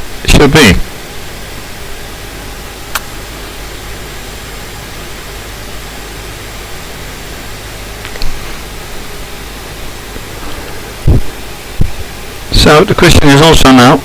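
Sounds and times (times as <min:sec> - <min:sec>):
sharp click: 0:02.9 - 0:03.1.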